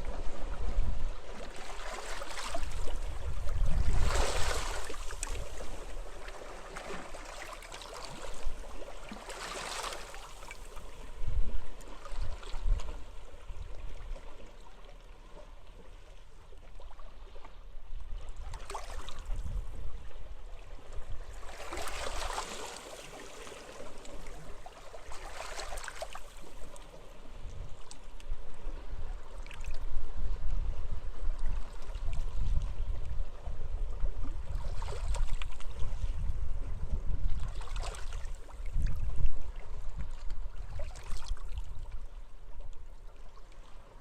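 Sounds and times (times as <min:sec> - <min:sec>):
wind rumbling on microphone: 0:00.0 - 0:07.0, 0:10.7 - 0:14.3, 0:17.1 - 0:22.4, 0:26.6 - 0:43.3.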